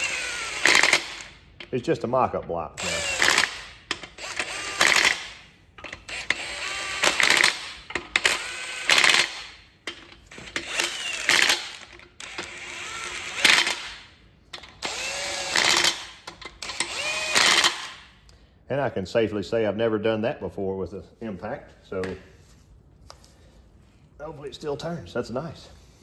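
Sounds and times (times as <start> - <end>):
impact wrench bursts: 0.0 - 1.8, 2.8 - 18.2.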